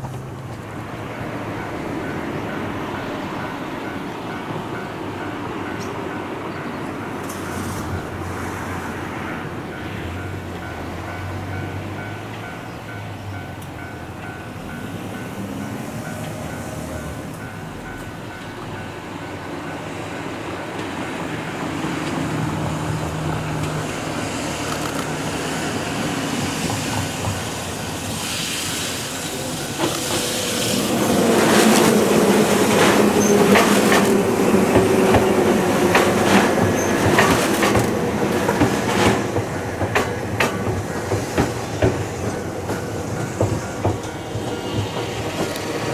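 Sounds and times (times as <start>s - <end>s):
electric train rumbling past: 0.0s - 45.9s
wheels clacking over rail joints: 9.5s - 45.9s
train motor hum: 10.1s - 45.9s.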